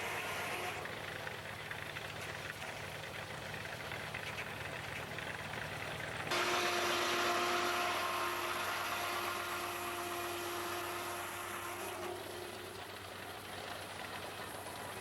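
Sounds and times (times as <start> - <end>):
circular saw cutting log: 0.0 - 0.9, 6.3 - 12.9
steam engine running: 0.0 - 15.0.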